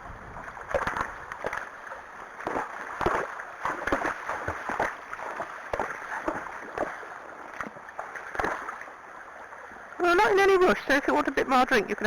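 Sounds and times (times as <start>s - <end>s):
horse slurping water: 0.4s - 8.8s.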